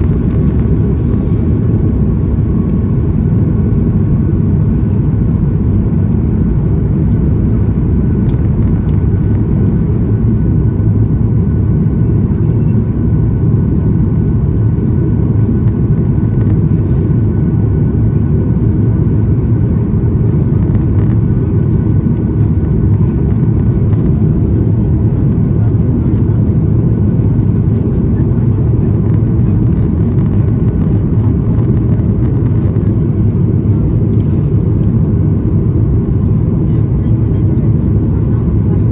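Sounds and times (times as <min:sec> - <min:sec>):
jet engine cabin rumble: 0:00.0 - 0:38.9.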